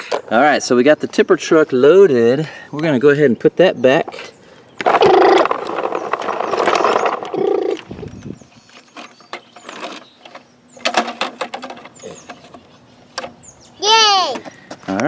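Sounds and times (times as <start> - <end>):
plastic toy truck rattling: 4.8 - 7.9, 10.8 - 12.6.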